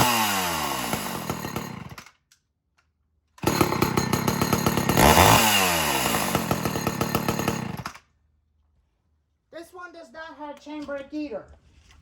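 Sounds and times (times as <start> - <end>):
chainsaw running: 0.0 - 2.1, 3.4 - 8.0.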